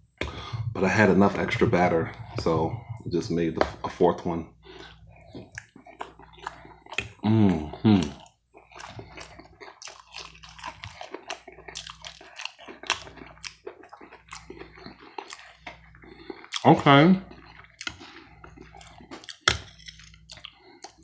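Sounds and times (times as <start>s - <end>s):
close chewing mouth smacks: 4.8s - 16.7s, 17.3s - 21.0s.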